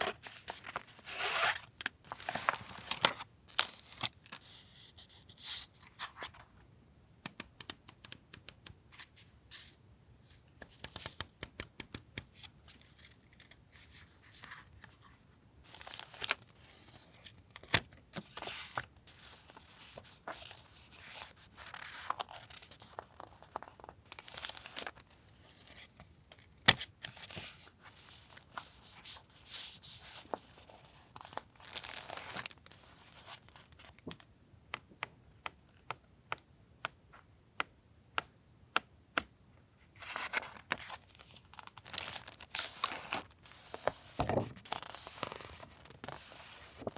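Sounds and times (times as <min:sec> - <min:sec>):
small taps and clicks: 0:07.2 - 0:08.8
packaging crinkling and tearing: 0:30.0 - 0:33.4, 0:40.3 - 0:46.9.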